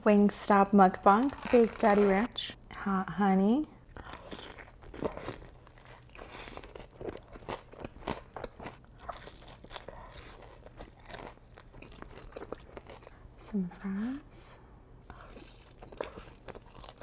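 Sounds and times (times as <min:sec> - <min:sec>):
crunching and chewing fried food: 0:03.9 - 0:13.3, 0:15.1 - 0:17.0.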